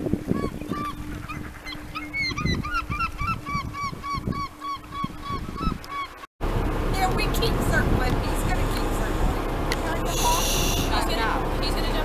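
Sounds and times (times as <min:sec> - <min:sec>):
gusty wind on microphone: 0:00.0 - 0:11.8
bird honking calls: 0:00.3 - 0:06.2, 0:09.9 - 0:11.2
faint fog horn tone: 0:08.6 - 0:11.2.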